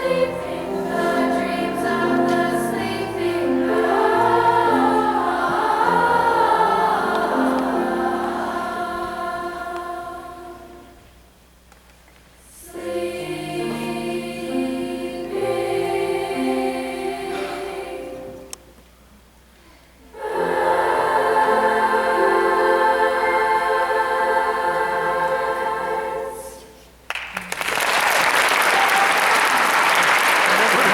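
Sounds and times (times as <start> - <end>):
girls' choir singing: 0.0 - 11.0, 12.5 - 18.5, 20.1 - 26.9.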